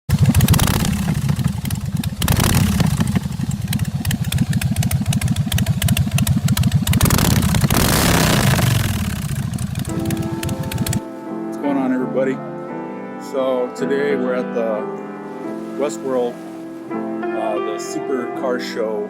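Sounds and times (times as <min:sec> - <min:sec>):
motorcycle engine revving: 0:00.1 - 0:11.0.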